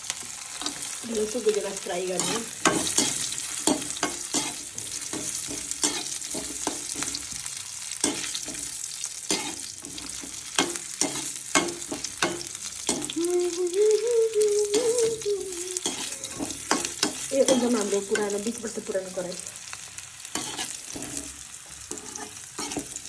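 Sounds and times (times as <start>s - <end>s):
food sizzling in a pan: 0.0s - 23.0s
utensil scraping metal pan: 15.8s - 18.4s, 20.3s - 23.0s.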